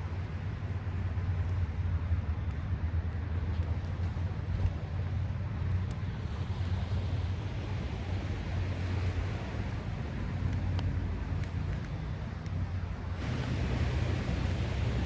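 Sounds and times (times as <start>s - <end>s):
broad wash of noise: 0.0s - 15.0s
wind rumbling on microphone: 0.0s - 15.0s
faint ticks: 10.4s - 12.6s.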